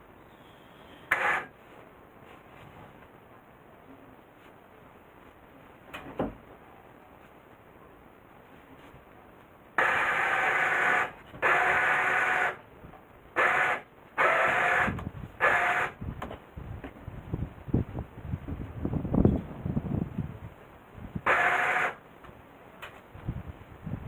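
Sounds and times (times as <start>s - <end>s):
winch motor running: 21.3s - 22.0s.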